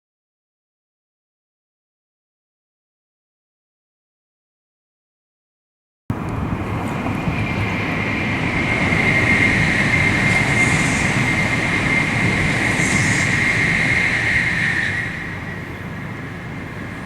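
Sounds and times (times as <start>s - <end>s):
train wheels rumbling on rails: 6.1s - 17.0s
high electric whine: 7.2s - 17.0s.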